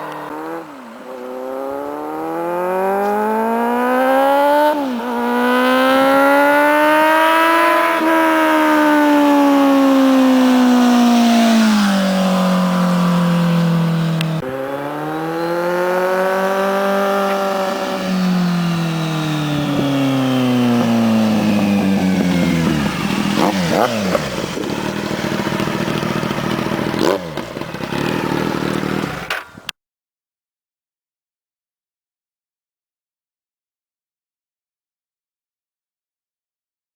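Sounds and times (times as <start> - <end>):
motorcycle engine revving: 0.0 - 29.7
exhaust crackles: 8.0 - 29.3.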